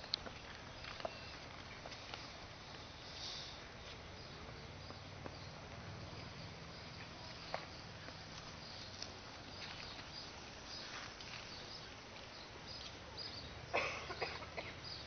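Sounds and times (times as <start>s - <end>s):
bird chirps: 6.2s - 15.0s.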